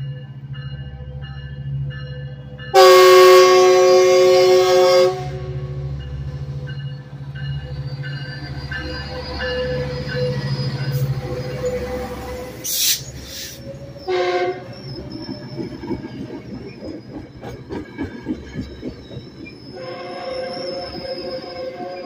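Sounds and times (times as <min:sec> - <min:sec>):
thin high wheel squeal: 0:07.7 - 0:12.0, 0:12.6 - 0:17.3, 0:18.6 - 0:22.0
train wheels clicking over track: 0:14.9 - 0:19.8.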